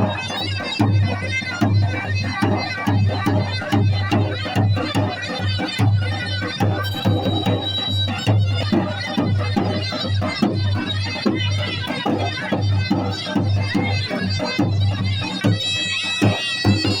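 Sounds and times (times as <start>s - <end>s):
drums beating: 0.0s - 17.0s
reedy folk melody: 5.4s - 17.0s.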